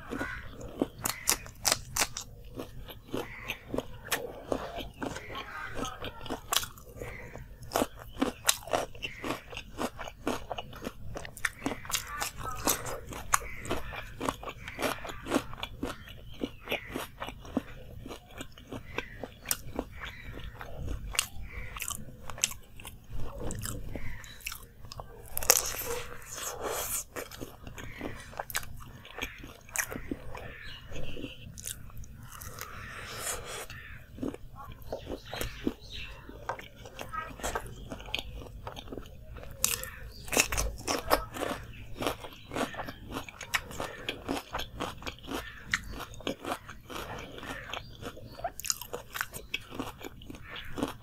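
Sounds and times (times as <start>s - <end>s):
crunchy chewing: 0.0s - 51.0s.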